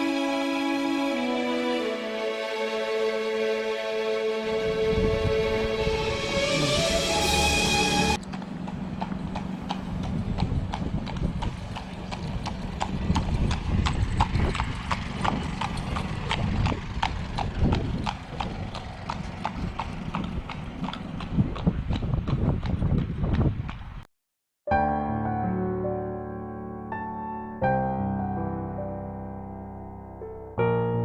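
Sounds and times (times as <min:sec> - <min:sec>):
low rumbling noise: 0:04.2 - 0:24.0.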